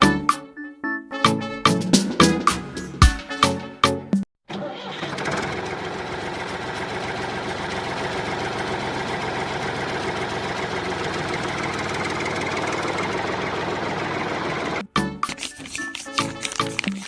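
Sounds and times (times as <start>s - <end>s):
engine idling: 5.3s - 14.8s.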